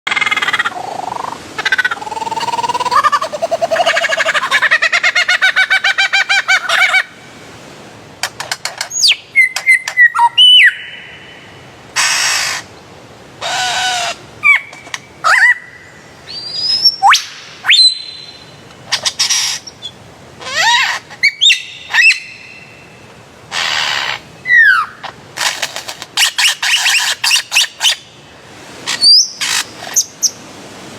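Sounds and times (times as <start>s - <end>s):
bird trilling: 0.1s - 7.0s, 16.3s - 22.7s
bird whistles and harsh calls: 8.9s - 11.3s, 20.5s - 22.7s, 23.6s - 25.0s, 26.2s - 28.0s, 28.9s - 30.4s.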